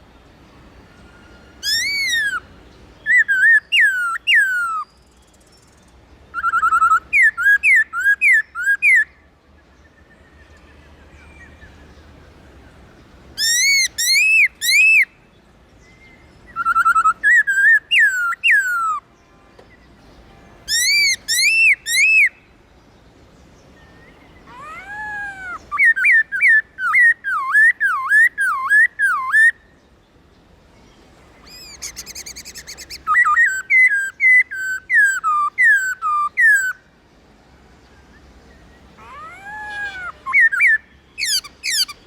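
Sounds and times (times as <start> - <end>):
bird singing whistled phrases: 1.2 - 5.3, 6.3 - 9.2, 13.4 - 15.2, 15.9 - 19.0, 20.7 - 22.5, 23.9 - 29.7, 31.4 - 36.9, 39.0 - 42.0.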